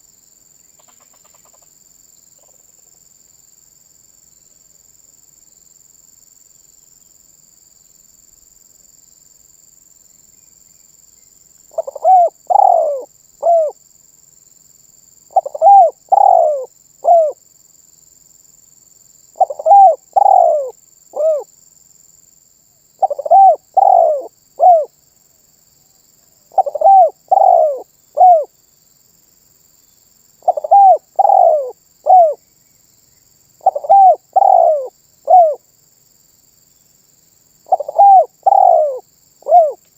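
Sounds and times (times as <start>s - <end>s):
dove cooing: 11.7s - 13.8s, 15.3s - 17.4s, 19.4s - 21.5s, 23.0s - 24.9s, 26.5s - 28.5s, 30.4s - 32.4s, 33.6s - 35.6s, 37.7s - 39.8s.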